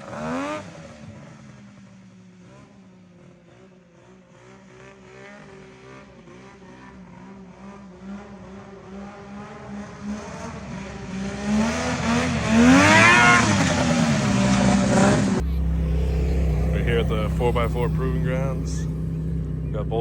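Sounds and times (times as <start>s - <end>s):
snowmobile engine running: 11.2s - 20.0s.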